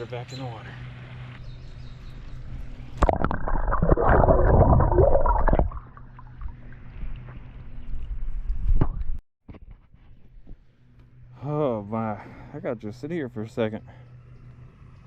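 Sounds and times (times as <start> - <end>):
water splashing and gurgling: 2.9 - 7.5.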